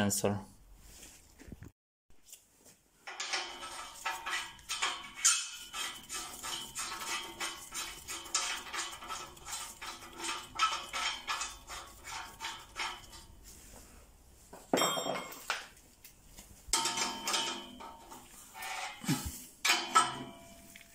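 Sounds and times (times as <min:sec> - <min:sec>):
metal tools clinking on metal: 0:03.0 - 0:07.5, 0:14.7 - 0:15.5, 0:16.7 - 0:20.9.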